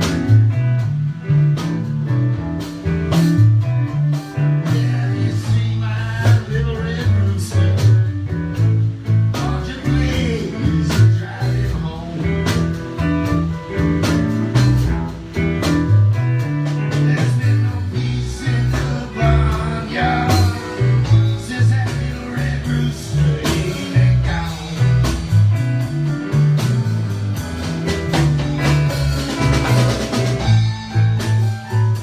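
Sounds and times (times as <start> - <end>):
drum kit: 0.0 - 32.0
guitar: 0.0 - 32.0
low bass line: 0.0 - 32.0.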